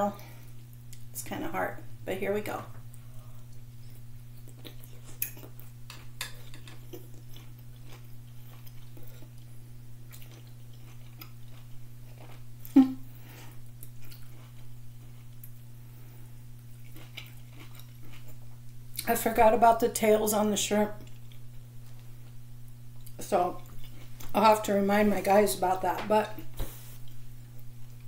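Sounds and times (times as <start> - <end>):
steady low hum: 0.0 - 28.0
person chewing food: 2.9 - 19.1, 21.0 - 24.3.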